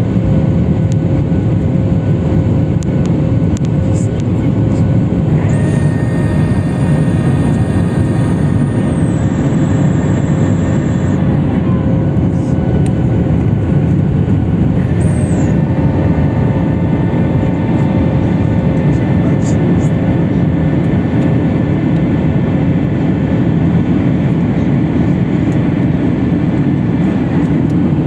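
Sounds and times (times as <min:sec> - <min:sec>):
airliner cabin engine noise: 0:00.0 - 0:28.0
faint high whine: 0:05.2 - 0:12.7.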